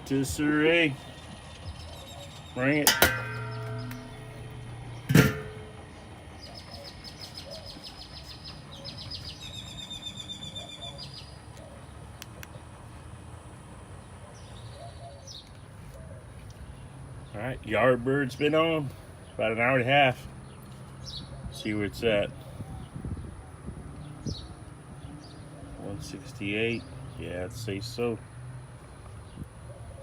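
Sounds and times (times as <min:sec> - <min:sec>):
birds trilling: 0:00.1 - 0:12.0
sharp clack: 0:02.8 - 0:05.9
low steady hum: 0:02.8 - 0:06.4.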